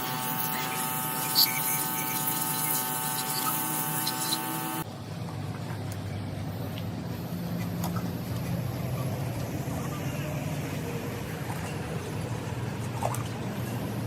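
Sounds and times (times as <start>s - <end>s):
small motor whining: 0.0s - 4.9s.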